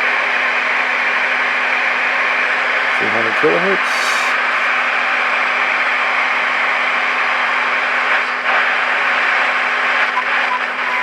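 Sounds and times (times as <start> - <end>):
radio static hiss: 2.9 - 5.0.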